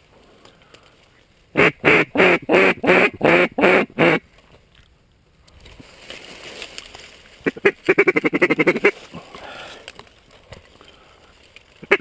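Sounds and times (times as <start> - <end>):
duck call quacks: 1.6 - 4.2, 7.4 - 9.0.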